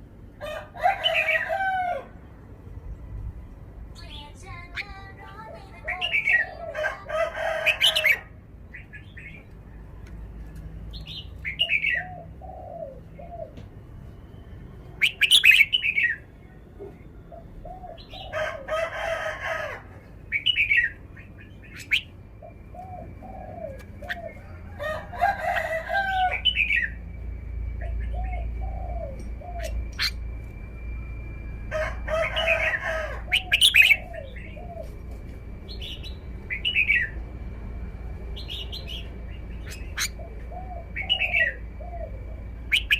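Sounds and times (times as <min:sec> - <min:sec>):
bird singing: 0:03.9 - 0:06.8, 0:10.9 - 0:18.4, 0:20.1 - 0:42.9
thin steady high tone: 0:22.1 - 0:39.5.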